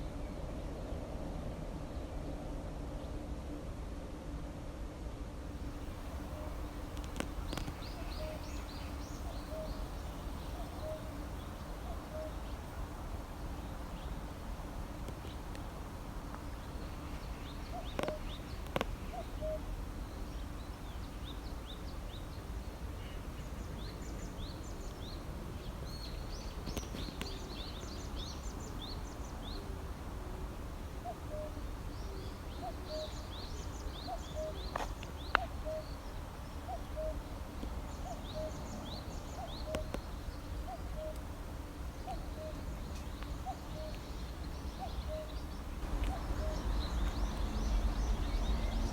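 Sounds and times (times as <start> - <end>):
songbirds chirping and singing: 5.8 - 22.5, 31.0 - 41.3, 41.9 - 48.9
low background rumble: 44.1 - 48.9.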